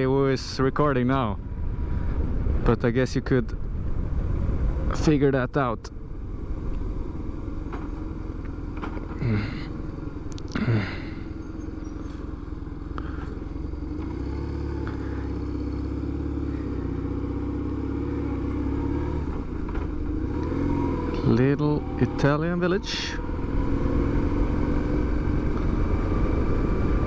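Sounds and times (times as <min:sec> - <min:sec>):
motorcycle engine running: 0:05.9 - 0:27.0.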